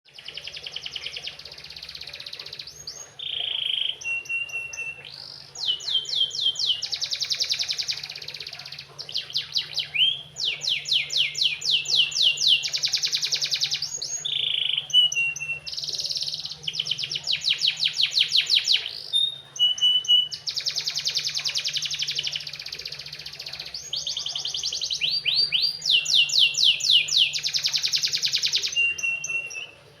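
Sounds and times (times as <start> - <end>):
canary singing trills: 0.1 - 30.0.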